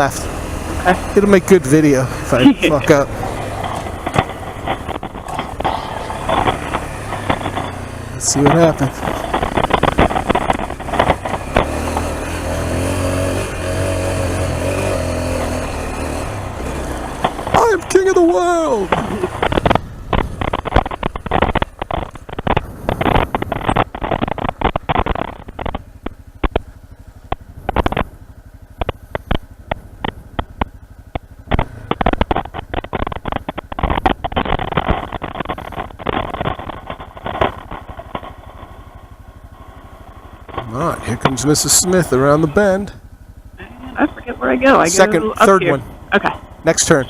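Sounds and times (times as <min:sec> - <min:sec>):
dirt bike engine under load: 0:00.0 - 0:47.0.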